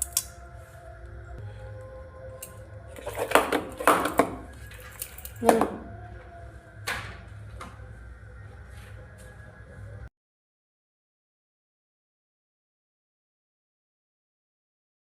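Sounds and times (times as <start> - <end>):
steady low hum: 0.0 - 10.1
utensils and cookware clattering: 2.4 - 5.9.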